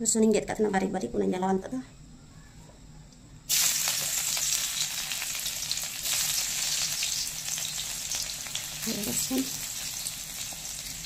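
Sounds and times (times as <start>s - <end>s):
garlic sizzling in hot oil: 3.5s - 11.0s.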